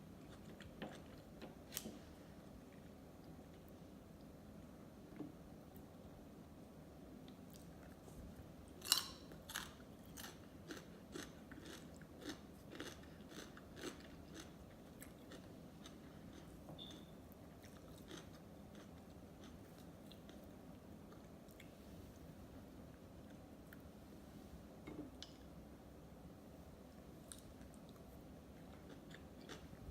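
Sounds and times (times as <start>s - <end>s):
sushi chewing: 8.8s - 21.8s.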